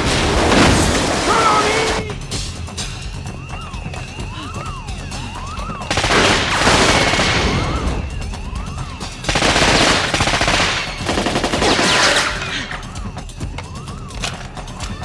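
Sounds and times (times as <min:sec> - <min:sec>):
warbling alarm: 0:00.0 - 0:15.0
automatic gunfire bursts: 0:05.9 - 0:07.8, 0:08.9 - 0:12.8.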